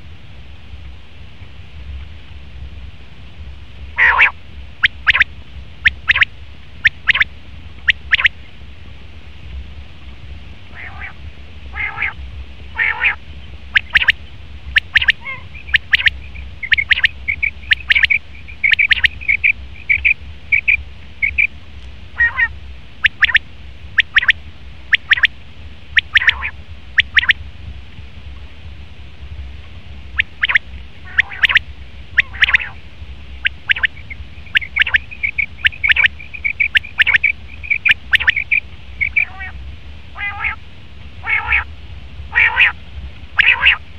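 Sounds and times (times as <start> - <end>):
quail calling: 4.0 - 7.3, 7.9 - 8.3, 10.7 - 14.2, 14.8 - 21.5, 22.2 - 23.4, 24.0 - 25.3, 26.0 - 27.4, 30.2 - 32.8, 33.4 - 40.6, 41.2 - 41.7, 42.3 - 42.8, 43.4 - 43.8.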